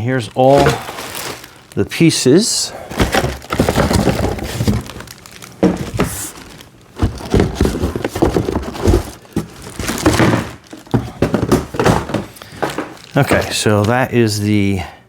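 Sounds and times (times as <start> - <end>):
packaging crinkling: 0.0 - 14.1
knocks of parts set down: 7.0 - 13.5.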